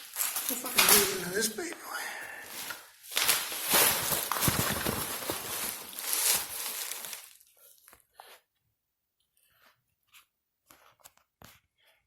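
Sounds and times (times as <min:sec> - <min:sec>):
packaging rustling and tapping: 0:02.6 - 0:08.0
cardboard box tearing: 0:03.2 - 0:07.4.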